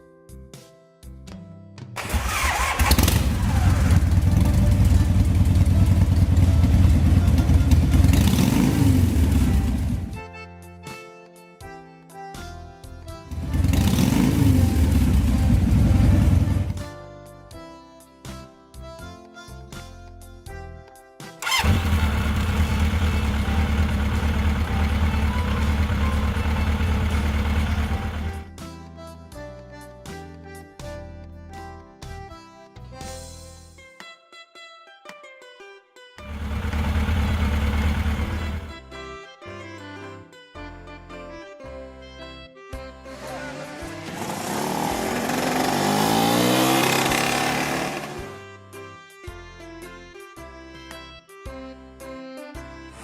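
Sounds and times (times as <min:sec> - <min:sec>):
music: 0:00.0 - 0:53.0
vehicle engine running: 0:02.0 - 0:10.2, 0:13.3 - 0:16.8, 0:21.4 - 0:28.5, 0:36.2 - 0:38.7, 0:43.9 - 0:48.4.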